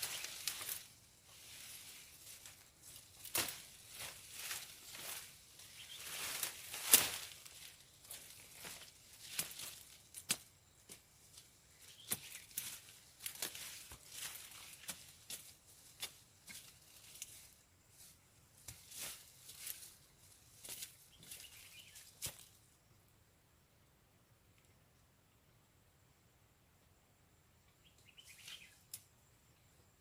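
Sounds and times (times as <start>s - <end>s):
rustling with clicks and snaps: 0.0s - 20.0s.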